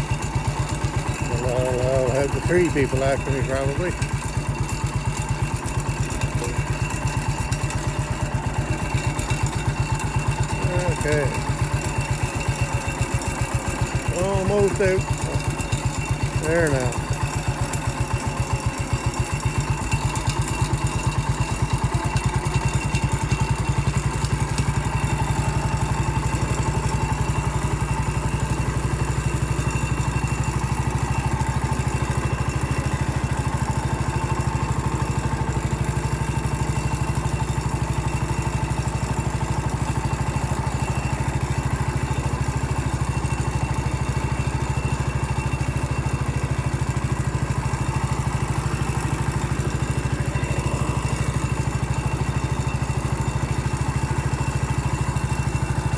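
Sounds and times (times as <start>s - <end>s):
garden tractor engine running: 0.0s - 55.9s.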